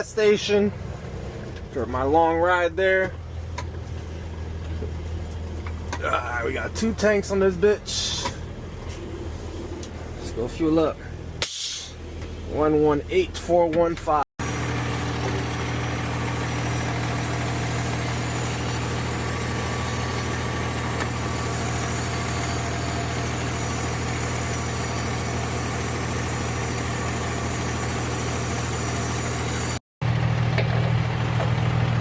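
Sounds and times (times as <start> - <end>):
truck engine idling: 14.0 - 32.0.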